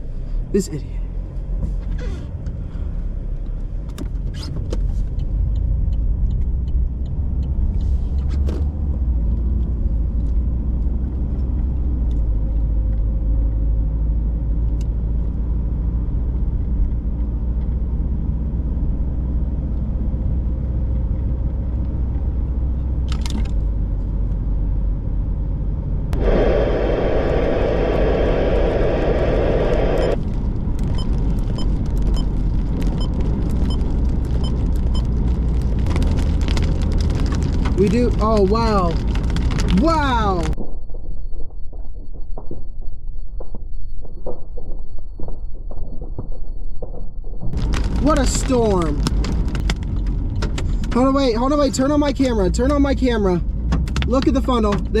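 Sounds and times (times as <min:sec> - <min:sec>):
road and engine rumble in car: 0:00.0 - 0:26.7, 0:28.3 - 0:40.6, 0:47.3 - 0:55.0
loud steady pitched tone: 0:26.2 - 0:30.2.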